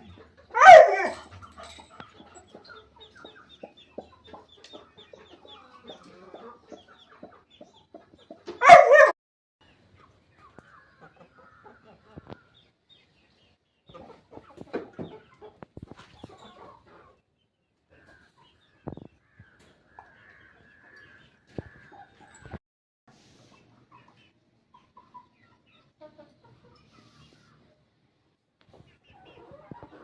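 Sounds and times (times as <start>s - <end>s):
hens clucking: 0.0s - 8.8s, 13.9s - 17.3s, 23.5s - 27.8s, 28.6s - 30.0s.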